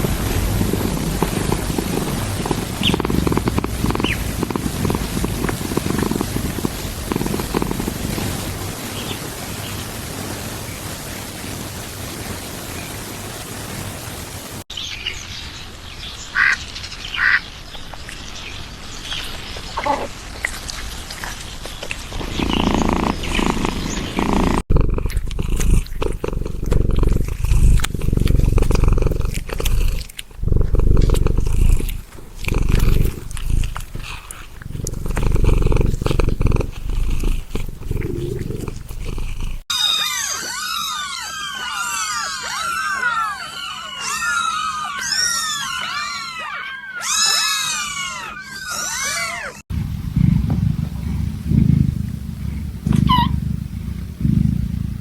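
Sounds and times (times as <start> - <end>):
low pulsing purring or growling: 0.0 - 8.8, 22.2 - 39.7, 49.7 - 55.0.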